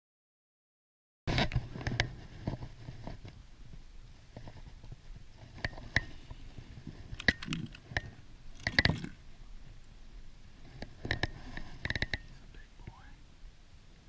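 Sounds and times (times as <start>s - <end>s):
sharp clicks and knocks: 7.1s - 9.2s, 10.8s - 13.0s.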